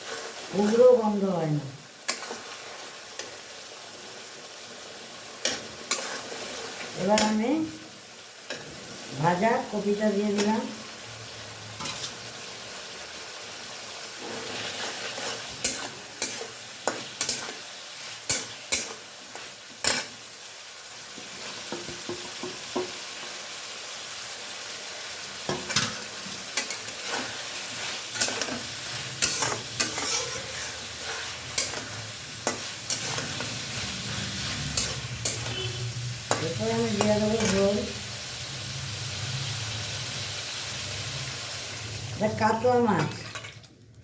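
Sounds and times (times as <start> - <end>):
food sizzling in a pan: 0.0 - 44.0
utensil scraping against pan: 5.4 - 7.3, 14.2 - 17.6, 25.7 - 37.7.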